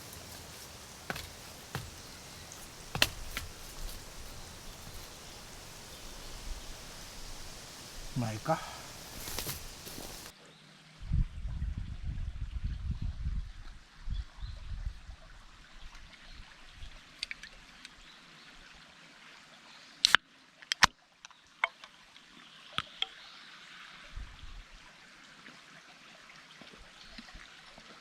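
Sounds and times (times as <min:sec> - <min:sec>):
sharp clicks and knocks: 0:00.0 - 0:06.2
running water: 0:00.0 - 0:10.3.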